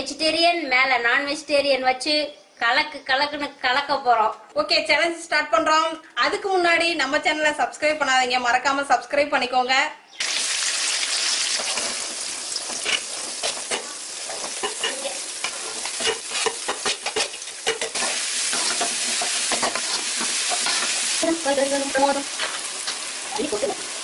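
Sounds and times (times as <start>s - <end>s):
vegetables sizzling in hot oil: 10.2s - 24.0s
metal clinking and scraping pan: 12.7s - 21.0s.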